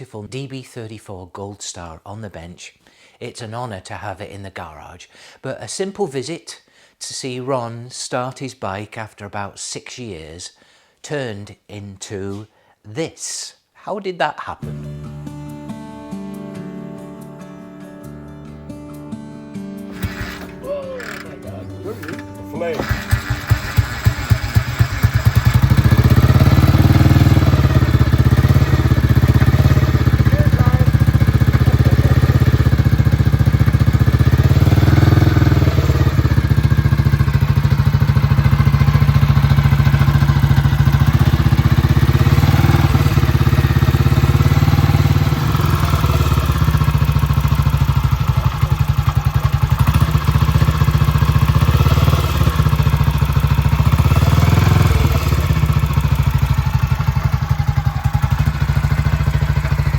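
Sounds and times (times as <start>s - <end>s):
motorcycle engine starting and revving: 19.9s - 59.9s.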